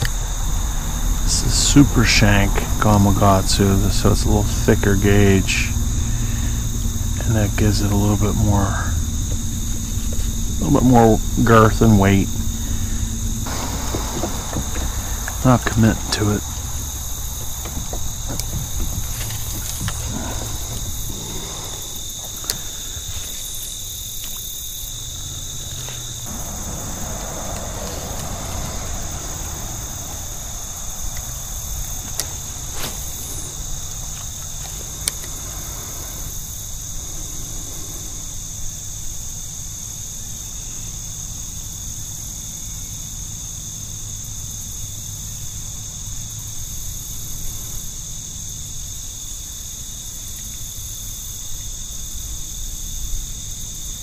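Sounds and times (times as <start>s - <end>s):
low steady hum: 0.0s - 41.6s
insects trilling: 0.0s - 54.0s.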